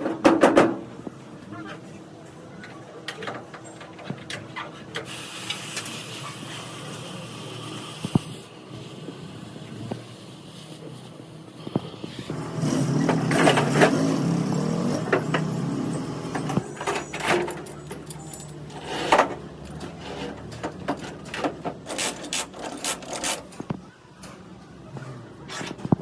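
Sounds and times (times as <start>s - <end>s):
metallic clinks of tools: 16.3s - 18.9s.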